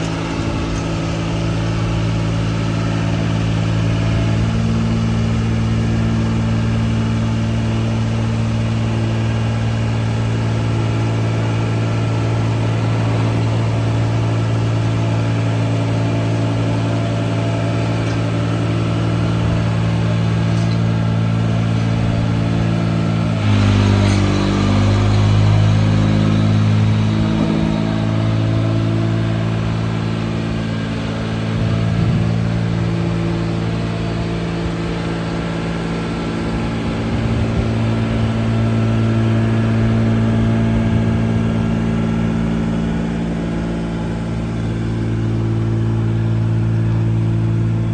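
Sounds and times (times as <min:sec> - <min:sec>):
haul truck engine running: 0:00.0 - 0:47.9.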